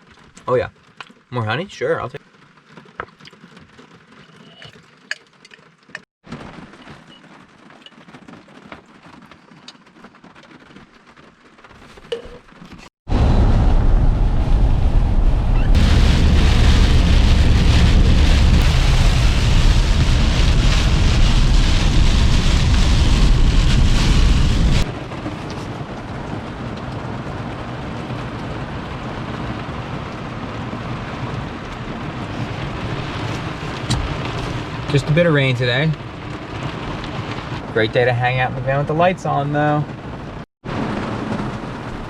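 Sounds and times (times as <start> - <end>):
heavy rain: 0.0 - 42.0
deep rumble: 13.1 - 37.8.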